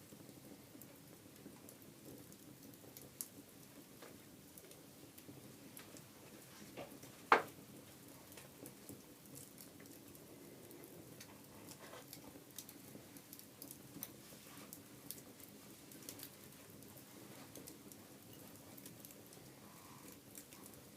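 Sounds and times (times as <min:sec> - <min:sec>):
wood fire crackling: 0:00.0 - 0:20.9.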